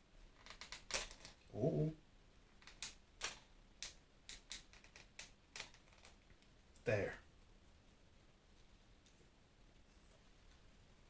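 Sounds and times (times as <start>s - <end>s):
plastic parts clicking: 0.4s - 1.5s, 2.6s - 6.2s.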